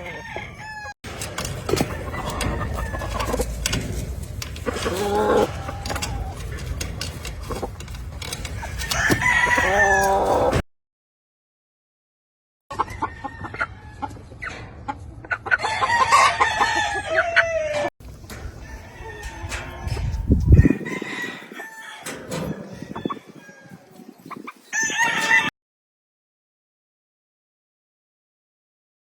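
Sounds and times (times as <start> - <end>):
roosters clucking: 0.0 - 10.6, 12.7 - 25.5
roosters crowing: 0.0 - 10.6, 15.4 - 25.5.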